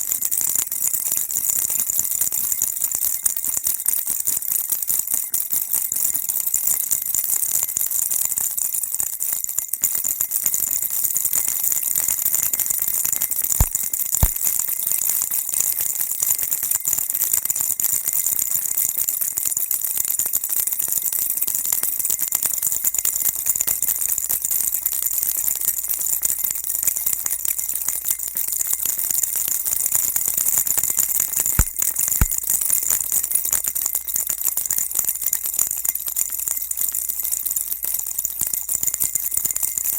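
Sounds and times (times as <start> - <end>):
sharp clicks: 13.6 - 14.4, 31.6 - 32.4.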